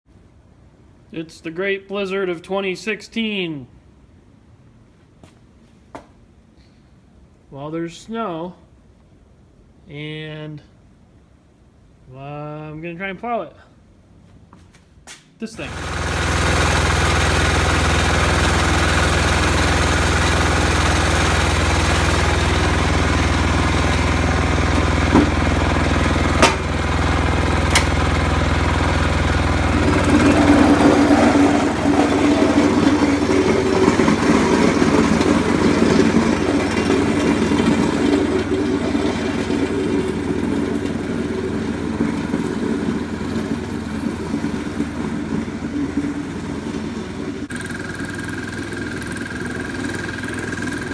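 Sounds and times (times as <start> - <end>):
diesel engine running: 15.6 - 50.9.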